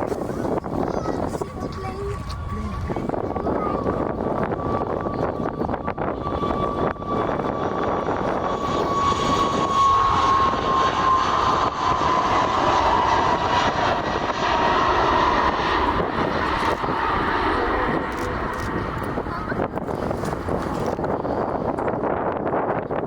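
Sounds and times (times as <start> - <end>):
airliner engines rushing: 0.0 - 23.0
high engine whine falling in pitch: 3.9 - 19.8.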